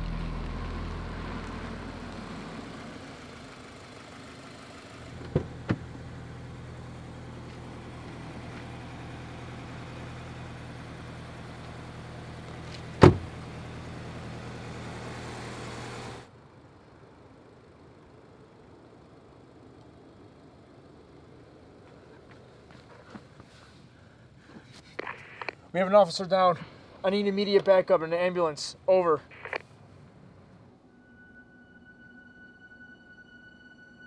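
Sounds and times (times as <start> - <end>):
steady low engine hum: 0.0 - 34.0
music: 30.8 - 34.0.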